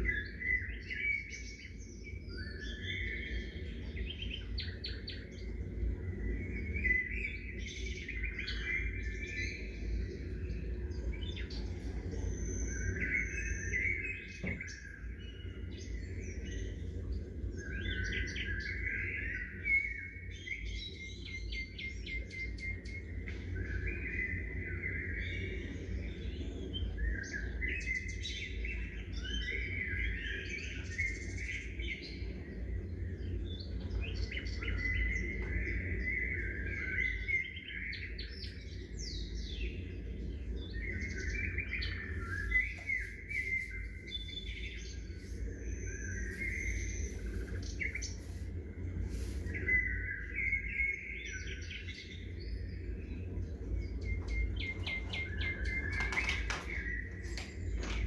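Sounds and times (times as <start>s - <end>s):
small birds chirping: 0.0s - 58.0s
steady low rumble: 38.8s - 50.7s, 51.6s - 58.0s.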